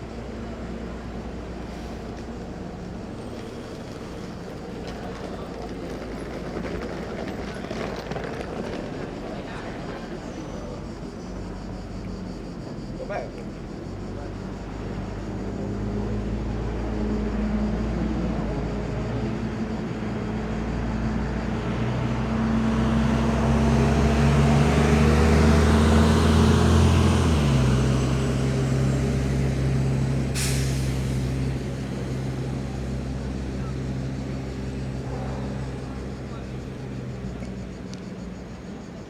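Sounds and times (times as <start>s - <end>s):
heavy vehicle engine running: 0.0s - 39.0s
air brake hiss: 30.3s - 31.5s.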